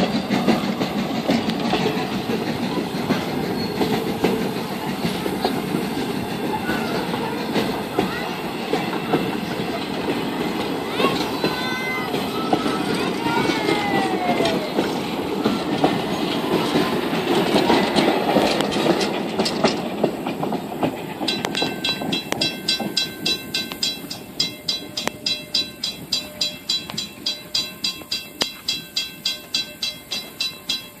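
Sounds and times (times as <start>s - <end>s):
railroad crossing bell ringing: 0.0s - 19.9s, 21.1s - 31.0s
train wheels clacking on rail joints: 0.0s - 31.0s.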